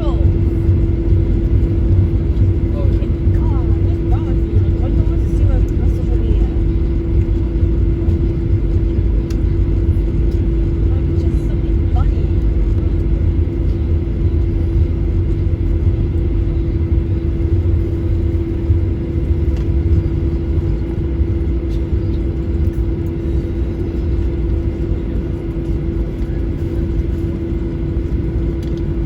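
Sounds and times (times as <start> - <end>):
jet engines running: 0.0 - 29.0.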